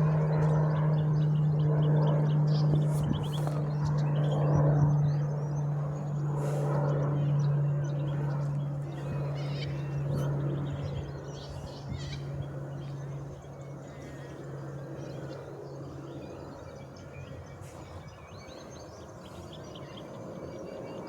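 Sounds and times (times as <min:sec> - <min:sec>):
propeller plane drone: 0:00.0 - 0:21.0
birds chirping: 0:06.9 - 0:21.0.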